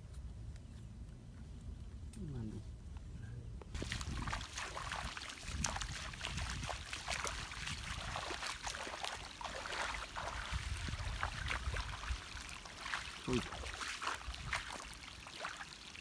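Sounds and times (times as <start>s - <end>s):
water splashing and sloshing: 3.8s - 16.0s.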